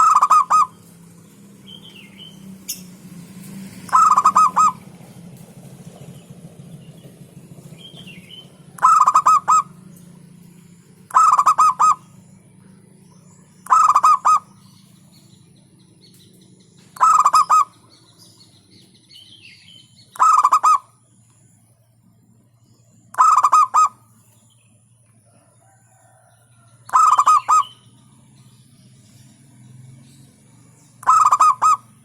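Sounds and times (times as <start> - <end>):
dove cooing: 0.0 - 0.9, 3.8 - 5.2, 7.6 - 12.2, 13.6 - 14.7, 17.0 - 18.0, 20.1 - 21.0, 23.1 - 24.1, 26.9 - 27.9, 31.0 - 32.0.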